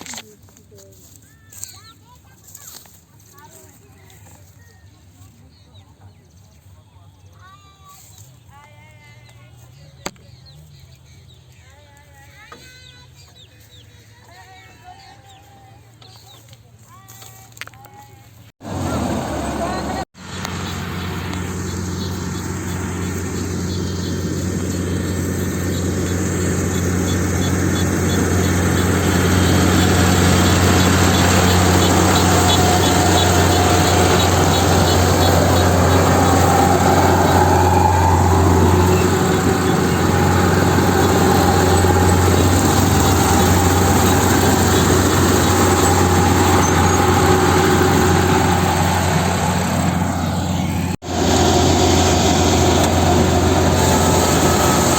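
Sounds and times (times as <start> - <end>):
harvester engine running: 18.6 - 54.9.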